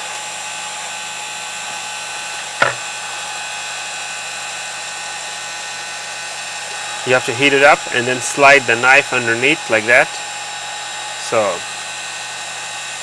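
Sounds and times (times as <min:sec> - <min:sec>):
heat gun blowing: 0:00.0 - 0:13.0
brief tap: 0:02.6 - 0:02.8.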